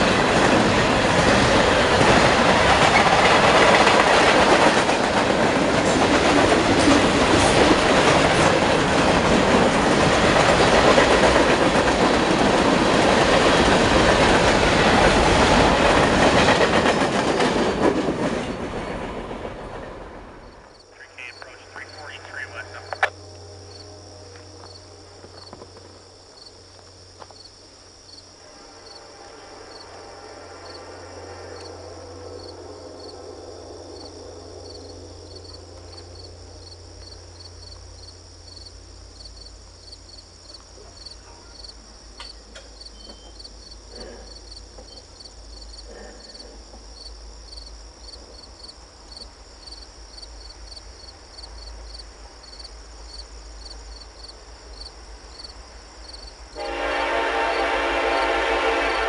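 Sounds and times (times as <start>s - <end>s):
insects chirping: 19.7s - 59.0s
high-pitched insect trill: 23.2s - 45.8s.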